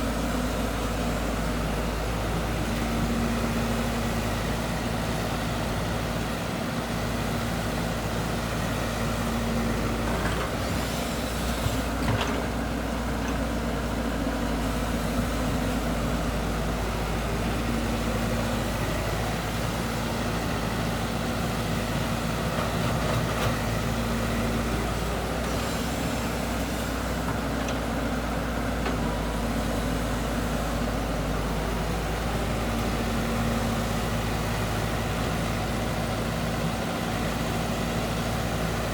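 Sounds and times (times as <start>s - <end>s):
heavy machine engine running: 0.0s - 38.9s.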